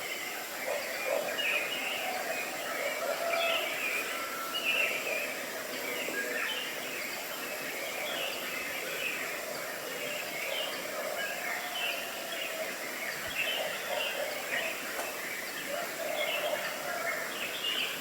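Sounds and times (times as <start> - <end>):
outdoor background noise: 0.0 - 18.0
birds chirping: 4.6 - 18.0.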